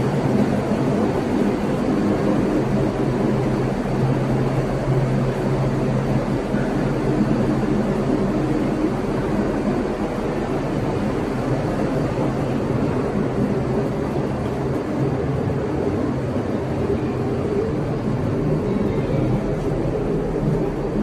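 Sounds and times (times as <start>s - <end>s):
ferry engines droning: 0.0s - 21.0s.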